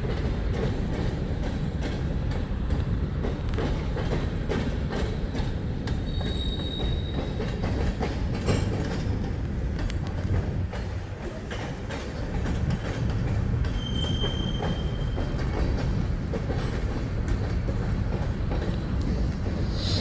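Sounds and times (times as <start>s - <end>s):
train wheels rumbling on rail: 0.0s - 20.0s
high wheel squeal: 6.0s - 7.4s, 13.7s - 15.4s.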